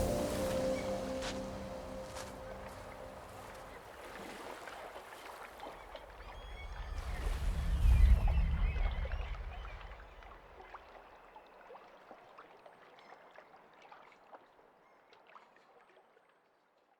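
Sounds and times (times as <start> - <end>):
paddle in water: 0.0 - 5.7.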